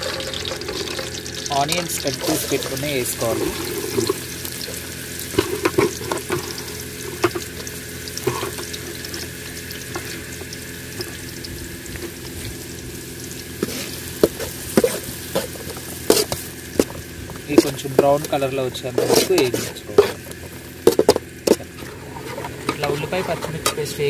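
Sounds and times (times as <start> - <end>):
spatula scraping a pan: 0.0 - 7.5, 8.2 - 9.3, 9.9 - 10.3, 13.6 - 17.0, 17.6 - 24.0
onions sizzling in hot oil: 0.0 - 23.1.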